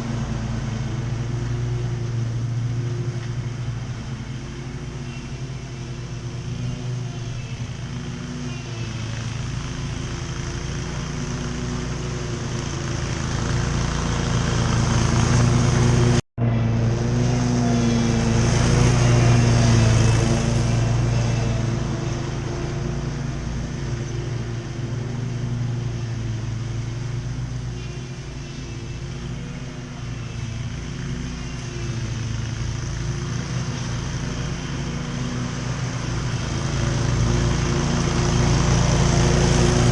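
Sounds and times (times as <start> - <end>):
riding lawn mower engine: 0.0 - 39.9.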